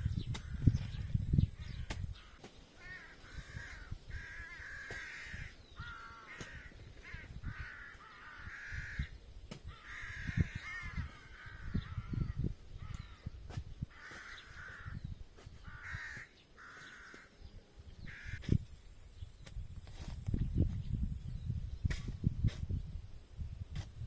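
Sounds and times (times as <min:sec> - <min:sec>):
crows cawing: 0:01.6 - 0:13.3, 0:13.9 - 0:17.4, 0:18.0 - 0:18.5
spade digging soil thumps: 0:01.8 - 0:02.6, 0:13.4 - 0:14.4, 0:15.4 - 0:16.2, 0:21.8 - 0:22.8.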